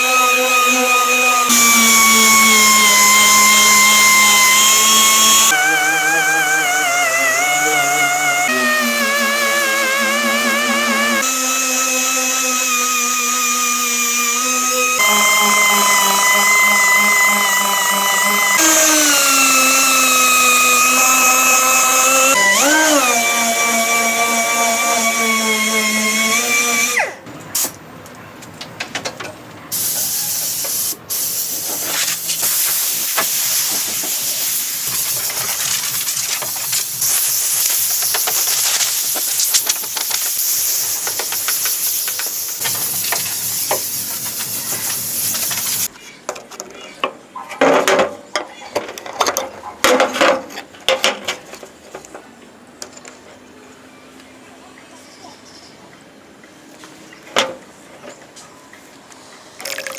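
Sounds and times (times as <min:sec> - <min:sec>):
power tool motor whining: 0:00.0 - 0:27.2, 0:32.0 - 0:45.9.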